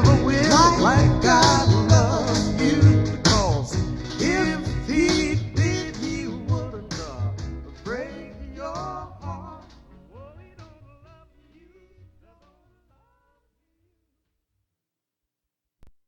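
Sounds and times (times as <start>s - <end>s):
soul ballad with singing: 0.0s - 12.6s.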